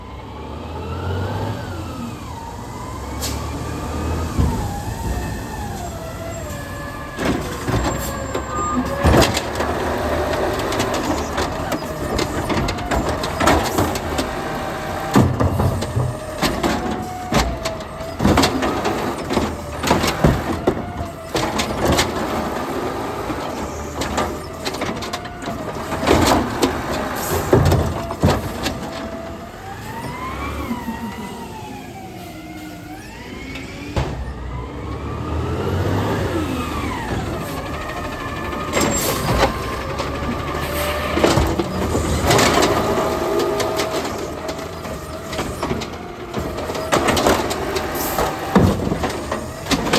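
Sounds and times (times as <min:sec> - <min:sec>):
garbage truck engine whining: 0:00.0 - 0:49.9
loud bangs and knocks: 0:07.1 - 0:29.3, 0:34.0 - 0:34.6, 0:36.8 - 0:49.9.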